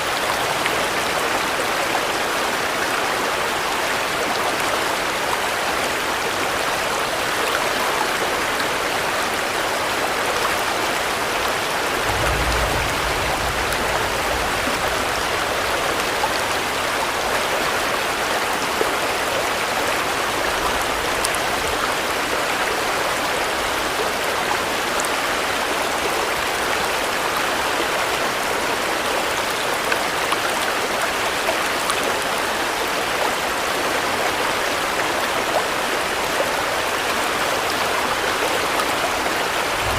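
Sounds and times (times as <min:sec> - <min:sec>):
dense rainfall hissing: 0:00.0 - 0:39.9
low rumble: 0:11.9 - 0:17.0.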